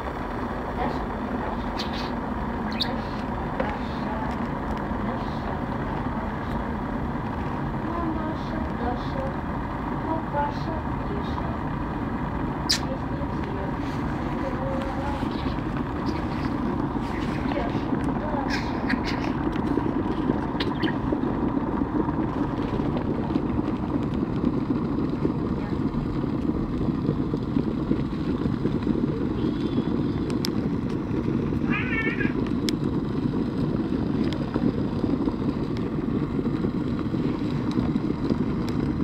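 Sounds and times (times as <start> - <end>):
electric kettle heating water: 0.0 - 39.0
cat meowing: 31.6 - 32.4.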